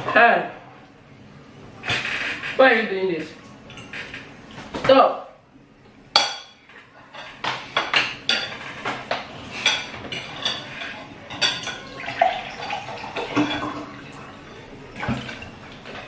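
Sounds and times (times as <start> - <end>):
forks clinking against dishes: 6.2 - 12.8.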